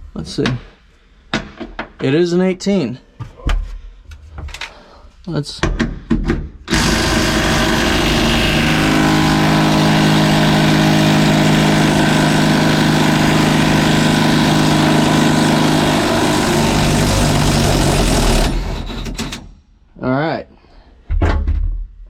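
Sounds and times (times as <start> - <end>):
impact wrench running: 6.7 - 19.4.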